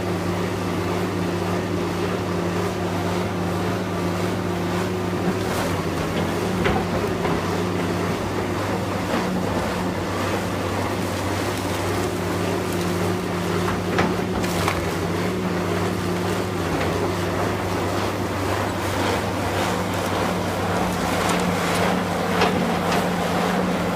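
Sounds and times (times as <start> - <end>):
heavy machinery engine running: 0.0 - 23.9.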